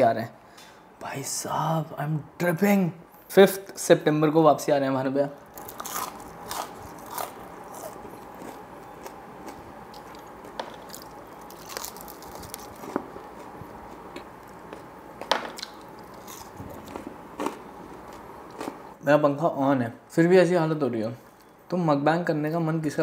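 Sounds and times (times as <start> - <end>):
crunchy food chewing: 5.5 - 18.9.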